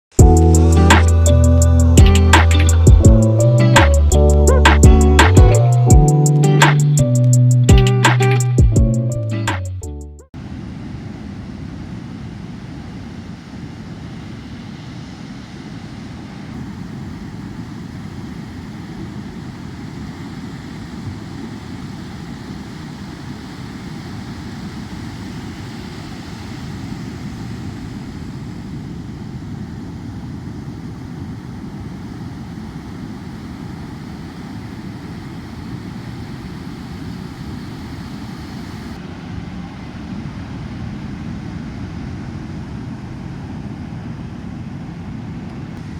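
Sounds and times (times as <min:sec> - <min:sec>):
ocean surf rumble: 0:10.4 - 0:45.9.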